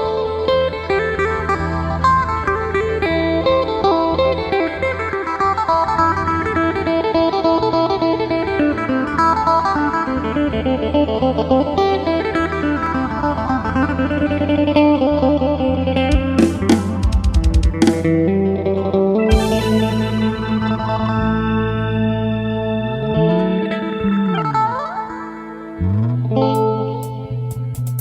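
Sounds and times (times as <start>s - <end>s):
plucked lute melody with delay: 0.0s - 28.0s
low bass drone: 19.3s - 24.8s.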